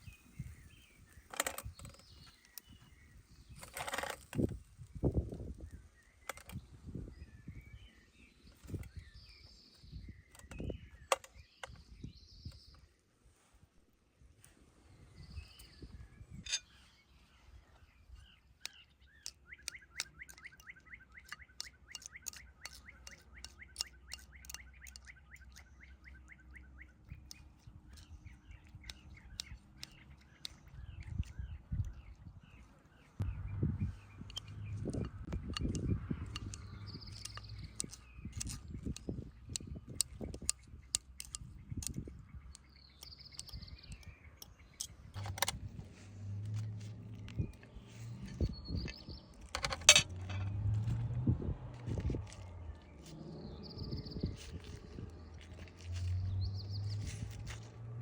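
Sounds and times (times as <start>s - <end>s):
bird chirping rapidly: 18.1s - 45.5s
bird calling: 18.2s - 31.3s
sharp clicks and ticks: 18.6s - 26.3s, 27.2s - 32.0s, 34.2s - 45.6s.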